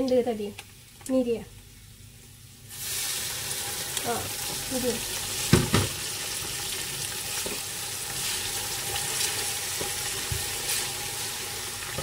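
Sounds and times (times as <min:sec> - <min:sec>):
paste sizzling in hot oil: 0:02.7 - 0:12.0.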